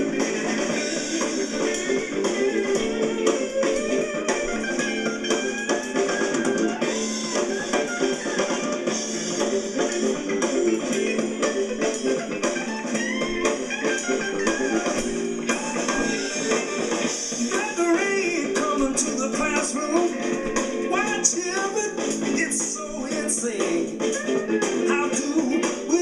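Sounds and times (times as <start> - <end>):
bass: 0.0 - 26.0
drums: 0.0 - 26.0
electric guitar lead with bent notes: 0.0 - 26.0.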